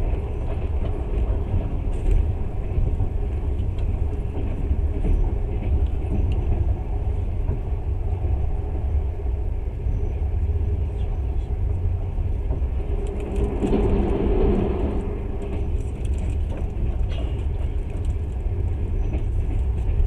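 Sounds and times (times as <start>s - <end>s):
train wheels rumbling: 0.0s - 20.0s.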